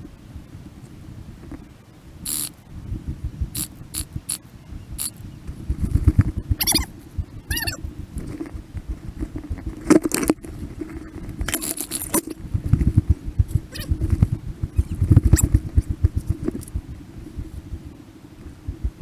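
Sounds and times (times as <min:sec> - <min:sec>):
high-pitched squeaky bursts: 0:02.3 - 0:02.6, 0:03.6 - 0:04.4, 0:05.0 - 0:05.2, 0:06.6 - 0:06.9, 0:07.5 - 0:07.8, 0:14.8 - 0:15.5
low thuds and rustling: 0:07.2 - 0:19.0.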